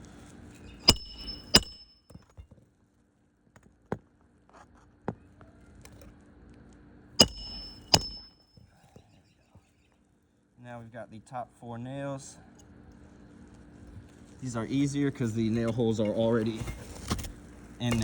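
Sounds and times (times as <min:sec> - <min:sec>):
hammer striking metal: 0:00.8 - 0:02.0, 0:07.2 - 0:08.4.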